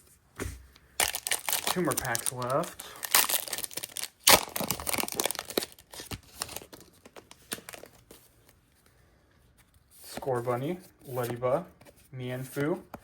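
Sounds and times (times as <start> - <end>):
foil wrapper tearing: 1.0 - 8.0
foil wrapper crinkling: 1.0 - 8.2.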